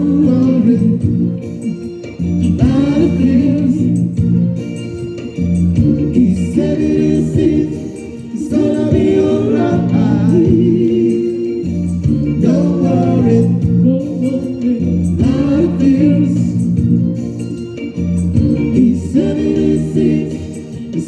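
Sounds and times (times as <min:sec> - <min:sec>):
gospel-style choir singing: 0:00.0 - 0:21.0
musical accompaniment: 0:00.0 - 0:21.0.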